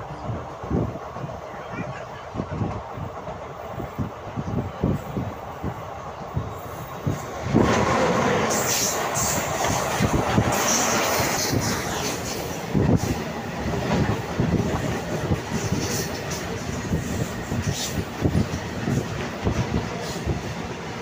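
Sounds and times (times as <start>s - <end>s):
passing goods train rushing: 0.0s - 21.0s
train wheels clattering over rails: 6.6s - 21.0s.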